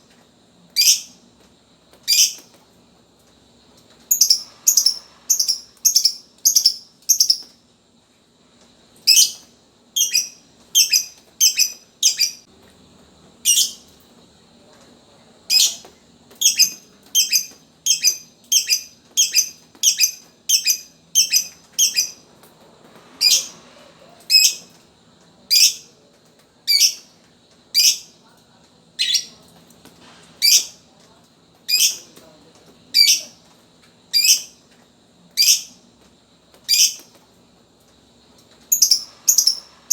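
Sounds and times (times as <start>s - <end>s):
lovebird chirping: 4.1s - 7.5s, 10.0s - 12.5s, 13.5s - 13.8s, 16.4s - 22.2s, 38.7s - 39.9s.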